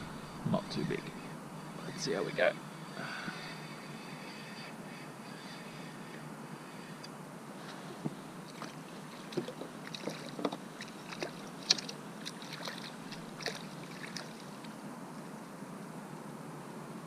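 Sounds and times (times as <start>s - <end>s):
wind: 0.0s - 17.0s
water washing: 8.5s - 14.7s
irregular knocks and clicks: 9.3s - 11.9s.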